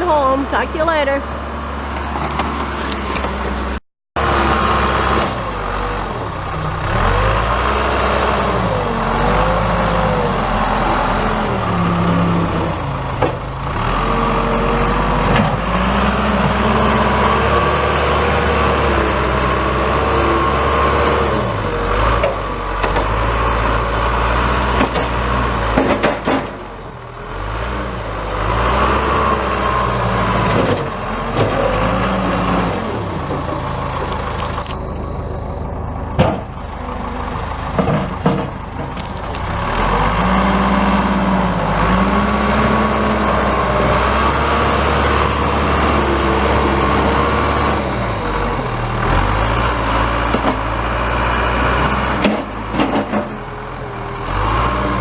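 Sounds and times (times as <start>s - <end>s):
vehicle engine running: 31.0s - 55.0s.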